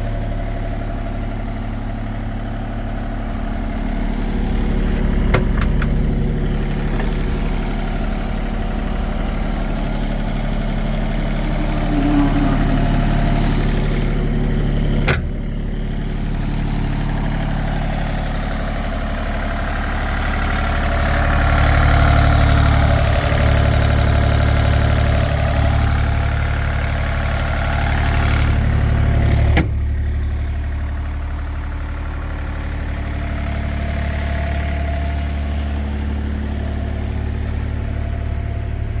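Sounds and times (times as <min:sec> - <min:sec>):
excavator diesel engine running: 0:00.0 - 0:39.0
sharp mechanical clunk: 0:04.8 - 0:07.5, 0:15.0 - 0:15.4.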